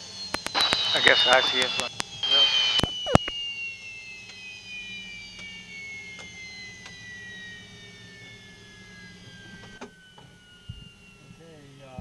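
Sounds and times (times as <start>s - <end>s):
jet engine whining down: 0.0s - 12.0s
low hum: 0.1s - 12.0s
sharp clicks: 0.3s - 3.4s.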